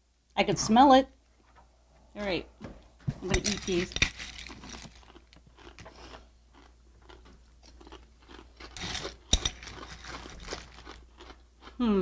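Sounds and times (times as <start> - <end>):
crunching and chewing cereal: 3.4 - 11.8.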